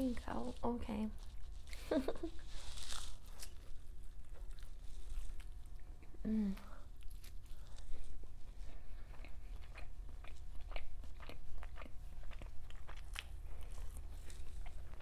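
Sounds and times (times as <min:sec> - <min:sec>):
mouth chewing food: 0:06.9 - 0:15.0.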